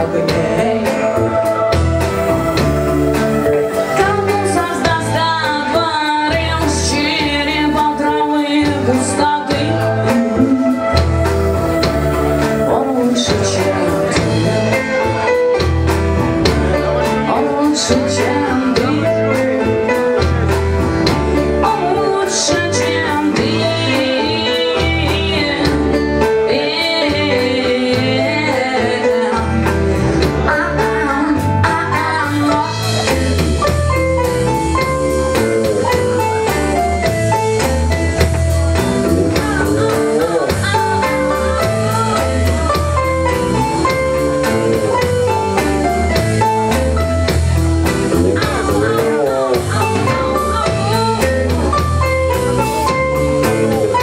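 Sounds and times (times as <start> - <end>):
electric guitar: 0.0 - 54.0
drum beat: 9.5 - 14.6.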